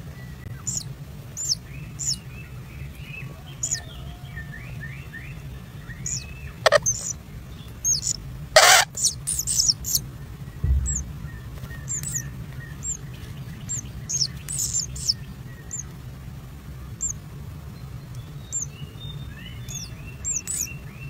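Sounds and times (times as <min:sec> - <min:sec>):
birds chirping: 0:00.0 - 0:21.0
low hum: 0:04.4 - 0:21.0
soft low trill: 0:10.2 - 0:13.8.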